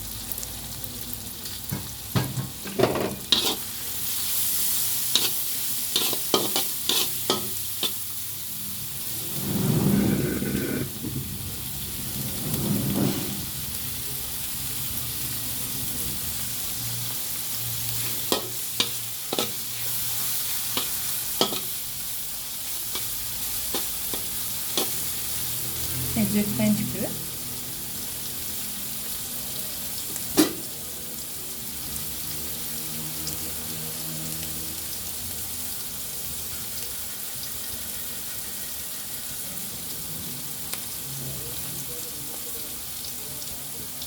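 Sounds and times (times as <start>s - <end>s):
vegetables sizzling in oil: 0.0s - 44.0s
spatula scraping metal pan: 2.7s - 3.7s, 5.2s - 8.0s, 9.0s - 11.1s, 12.2s - 13.6s.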